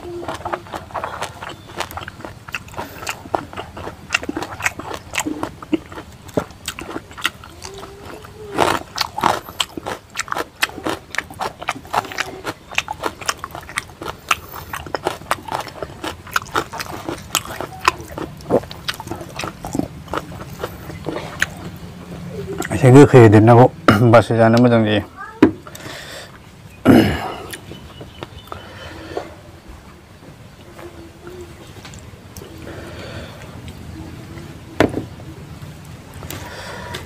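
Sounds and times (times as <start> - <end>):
person chewing with wet mouth smacks: 0.0 - 21.9.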